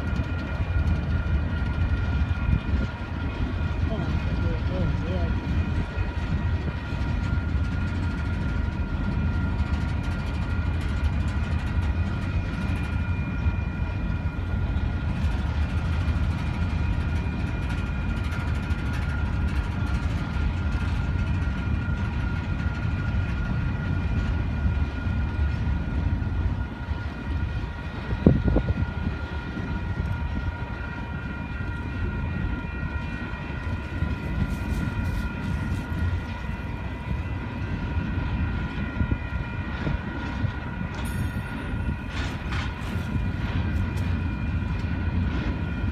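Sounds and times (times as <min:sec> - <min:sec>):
train wheels rumbling on rails: 0:00.0 - 0:45.9
train clunk: 0:39.7 - 0:45.7.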